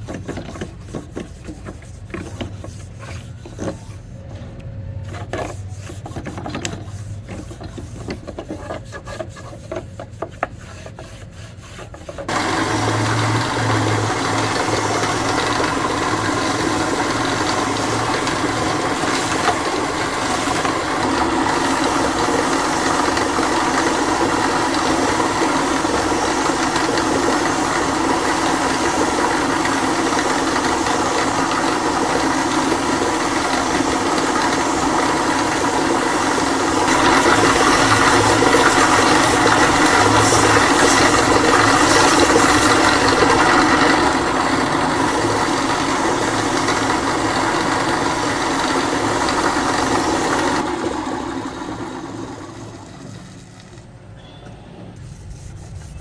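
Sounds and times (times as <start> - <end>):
woodworking machine running: 11.4 - 53.9.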